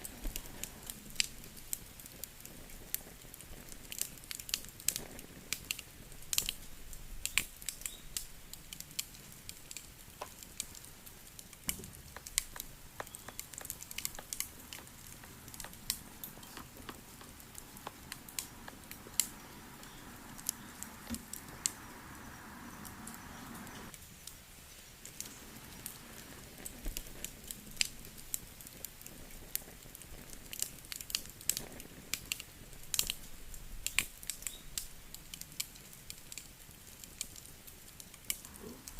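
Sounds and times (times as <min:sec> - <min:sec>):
campfire crackling: 0:00.0 - 0:38.9
soft rushing noise: 0:13.4 - 0:23.9.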